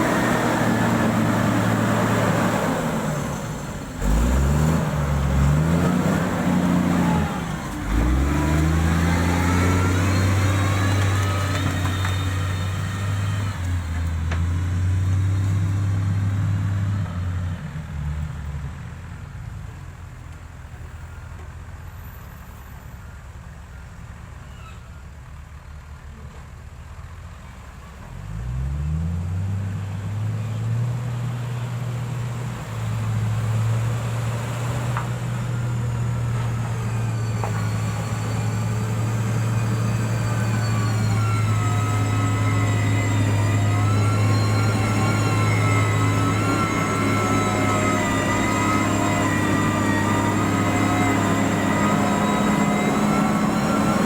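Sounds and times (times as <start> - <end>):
diesel engine revving: 0.0 - 19.5, 27.0 - 54.0
wavering whine: 35.8 - 54.0.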